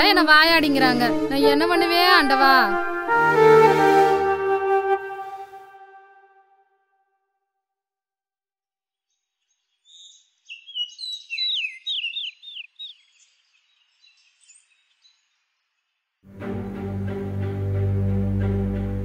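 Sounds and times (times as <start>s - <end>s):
bird singing: 9.4s - 16.0s.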